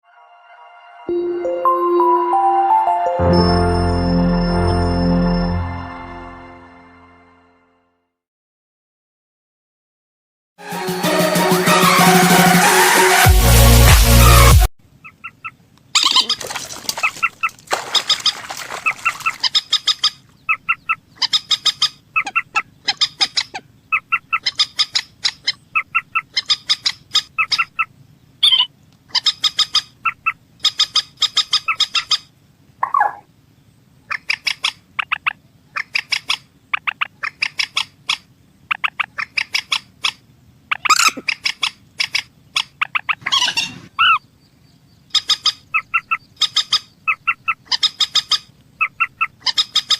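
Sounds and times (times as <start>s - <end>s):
birds rapid repeated calls: 15.0s - 33.3s, 34.1s - 49.9s.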